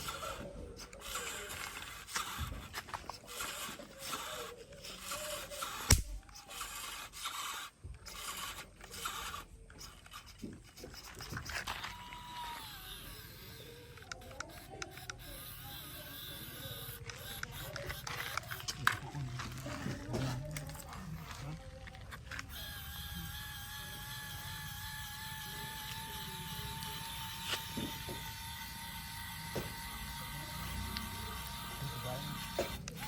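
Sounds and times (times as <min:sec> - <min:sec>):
toy tractor scraping noise: 0:00.0 - 0:33.0
sharp loud click: 0:05.8 - 0:06.3.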